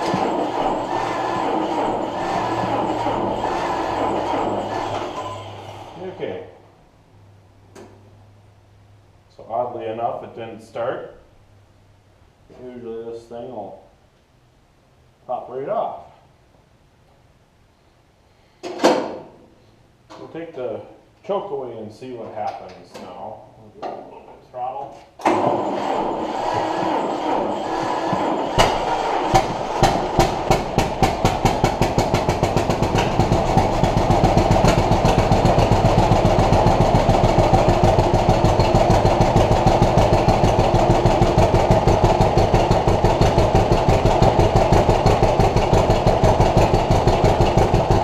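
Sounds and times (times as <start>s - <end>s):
tractor engine popping and running: 0.0s - 5.0s, 25.3s - 48.0s
starter motor cranking: 0.0s - 6.0s, 25.2s - 48.0s.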